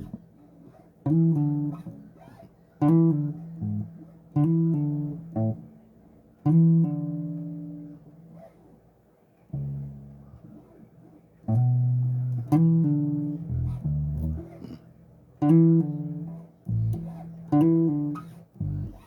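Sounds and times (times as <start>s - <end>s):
plucked bass guitar notes: 0.0s - 0.2s, 1.0s - 2.2s, 2.8s - 5.7s, 6.4s - 8.0s, 9.6s - 10.5s, 11.5s - 19.0s.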